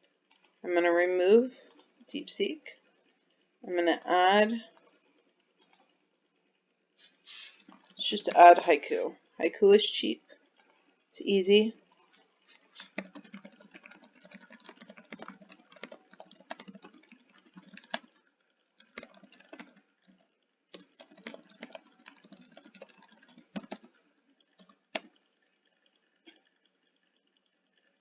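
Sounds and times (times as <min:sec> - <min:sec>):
typing on computer keyboard: 0:12.0 - 0:25.2.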